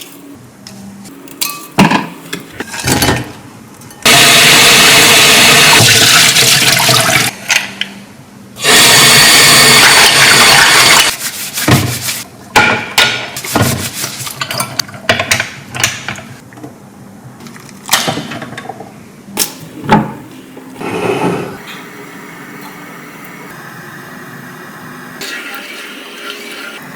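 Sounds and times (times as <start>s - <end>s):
water gushing from a tap: 5.6s - 7.3s.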